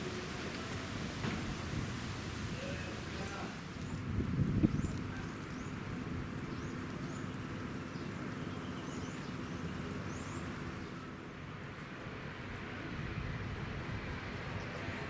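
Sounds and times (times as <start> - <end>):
small birds chirping: 3.0 - 11.1.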